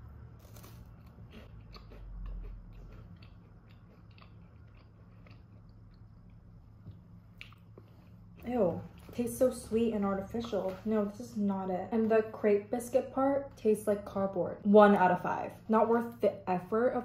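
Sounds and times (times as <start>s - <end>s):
biscuit being bitten and chewed: 0.0s - 8.4s.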